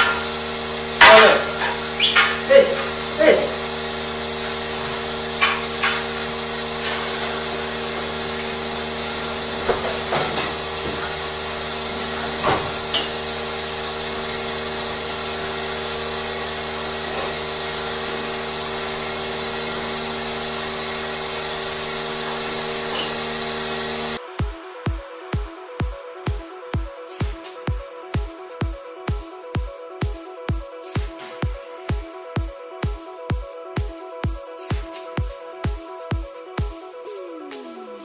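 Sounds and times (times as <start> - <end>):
machinery hum: 0.0 - 25.5
steady tones: 0.0 - 26.0.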